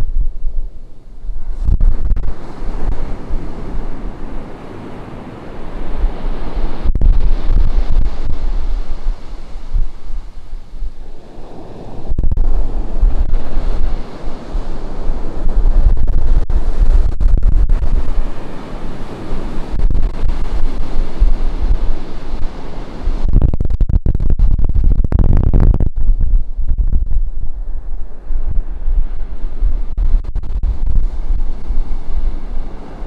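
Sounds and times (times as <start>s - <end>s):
ocean surf breaking on beach: 0.0s - 23.3s, 27.3s - 33.0s
wind buffeting microphone: 0.0s - 33.0s.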